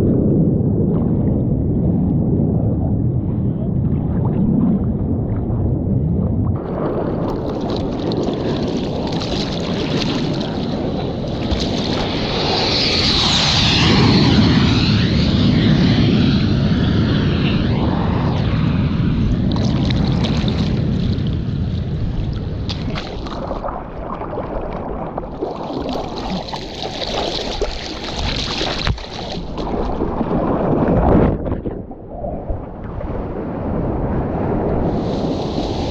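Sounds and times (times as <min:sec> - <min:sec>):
rushing wind: 0:00.0 - 0:35.9
water sloshing against camera: 0:06.6 - 0:12.2, 0:22.7 - 0:32.6
jet aircraft engine: 0:06.6 - 0:22.7, 0:34.3 - 0:35.9.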